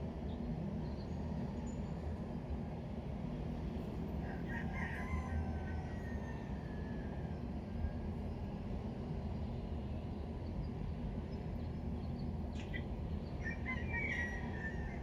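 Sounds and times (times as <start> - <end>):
rooster crowing: 4.2 - 7.4, 13.4 - 15.0.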